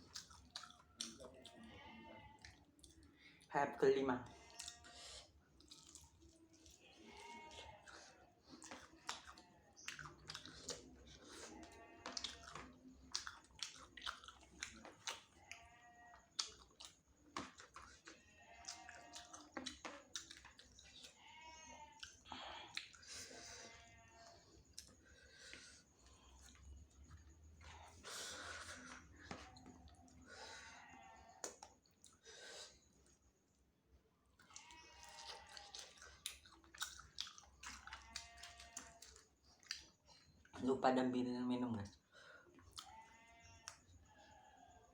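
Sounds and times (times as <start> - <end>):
chewing and biting: 0.0 - 1.7, 2.4 - 3.2, 4.4 - 21.2, 21.9 - 30.2, 31.3 - 32.2, 34.4 - 40.6, 42.5 - 43.0
wet mouth clicks and smacks: 12.1 - 15.2, 31.4 - 31.8, 35.6 - 39.9.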